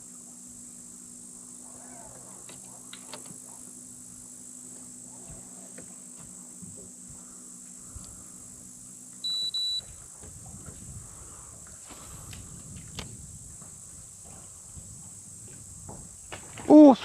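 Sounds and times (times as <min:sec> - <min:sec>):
low hum: 0:00.0 - 0:16.6
insects buzzing: 0:00.0 - 0:17.0
high electronic double beep: 0:09.2 - 0:09.8.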